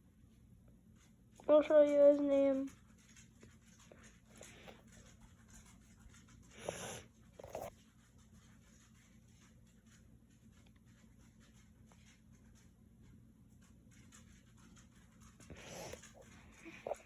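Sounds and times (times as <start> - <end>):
soft breathy sound: 15.5 - 17.0.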